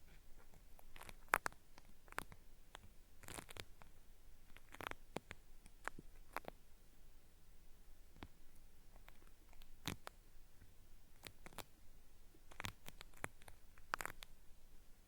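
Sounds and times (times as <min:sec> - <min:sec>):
cotton swab scratching microphone: 0:00.1 - 0:03.9, 0:04.5 - 0:06.6, 0:08.9 - 0:10.2, 0:12.5 - 0:14.4.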